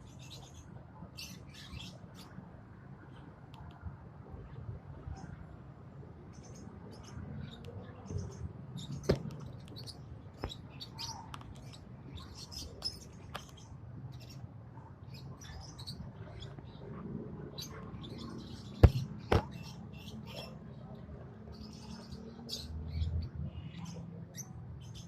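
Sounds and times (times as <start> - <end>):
lovebirds chirping and squeaking: 6.3 - 14.5, 15.1 - 16.9, 17.5 - 20.6.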